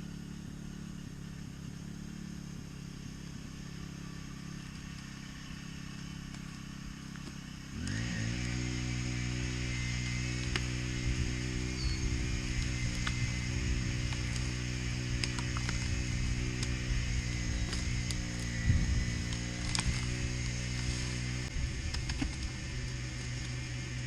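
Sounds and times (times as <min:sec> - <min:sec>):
winch engine running: 0:09.5 - 0:24.0.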